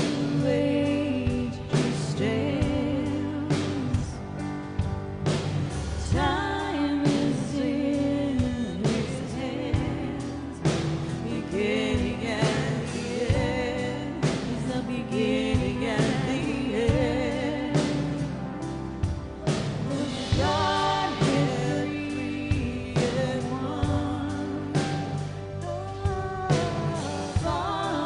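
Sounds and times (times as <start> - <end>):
sung vocals: 0.0 - 28.0
worship band playing: 0.0 - 28.0
drum hits: 19.0 - 28.0.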